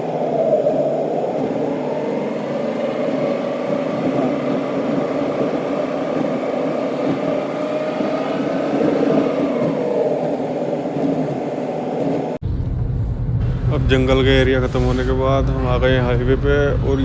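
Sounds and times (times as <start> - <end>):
car engine and tyre noise: 0.0 - 17.0.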